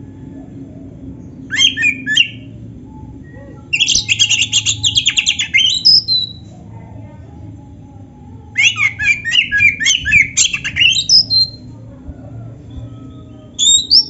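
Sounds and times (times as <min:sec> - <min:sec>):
bird singing whistled notes: 0:01.4 - 0:06.5, 0:08.5 - 0:11.7, 0:13.4 - 0:14.0.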